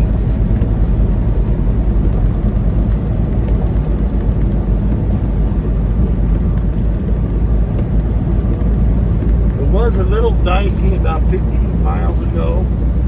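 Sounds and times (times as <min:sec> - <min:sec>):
road noise: 0:00.0 - 0:13.0
truck diesel engine: 0:00.0 - 0:13.0.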